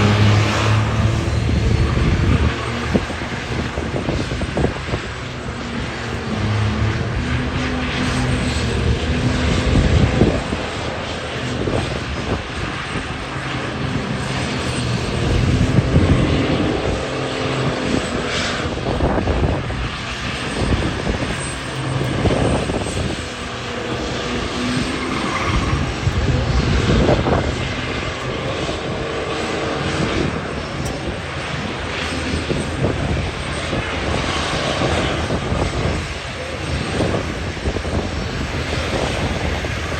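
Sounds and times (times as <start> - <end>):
diesel truck engine revving: 0.0 - 2.9.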